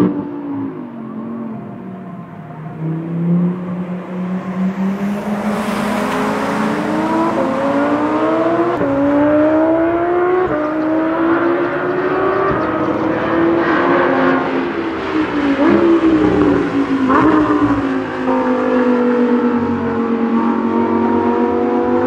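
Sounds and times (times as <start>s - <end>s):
sports car engine accelerating: 0.0s - 22.0s.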